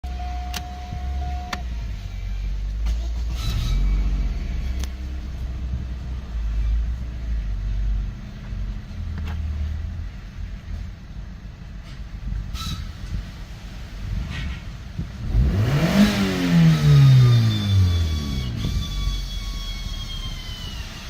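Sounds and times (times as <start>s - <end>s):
car engine running: 0.0s - 11.7s, 13.5s - 21.0s.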